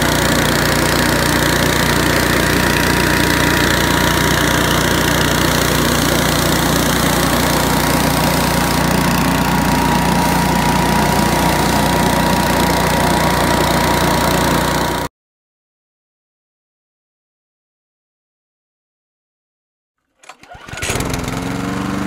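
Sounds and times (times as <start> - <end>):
impeller whine: 0.0 - 15.1
leaf blower engine running: 0.0 - 15.1, 20.2 - 22.0.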